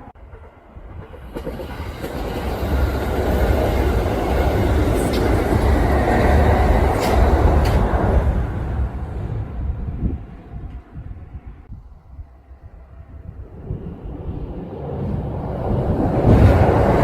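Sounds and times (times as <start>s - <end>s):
rail joint clicks: 0.0s - 11.2s
electric train rumbling past: 0.0s - 17.0s.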